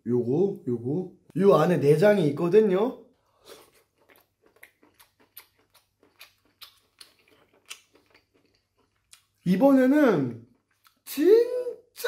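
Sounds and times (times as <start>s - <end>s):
mouth chewing wet clicks: 3.2s - 9.5s, 10.4s - 11.2s.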